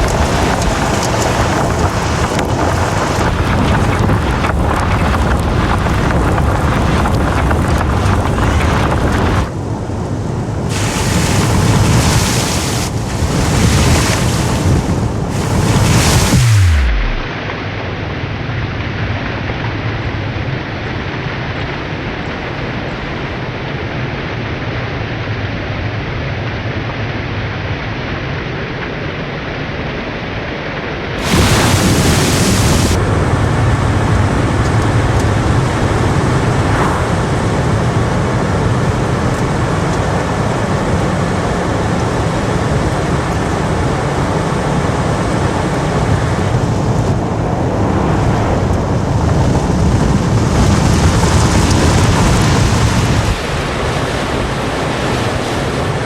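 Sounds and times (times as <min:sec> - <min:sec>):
factory floor noise: 0:10.7 - 0:17.4, 0:31.2 - 0:38.4.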